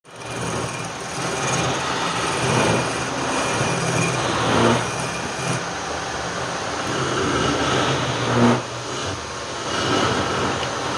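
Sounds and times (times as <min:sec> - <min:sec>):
wood lathe motor hum: 0:00.0 - 0:10.9.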